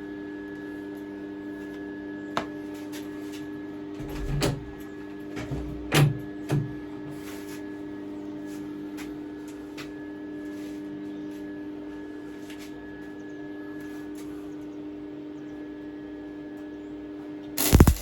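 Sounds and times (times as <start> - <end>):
steady electrical hum: 17.6 - 18.0.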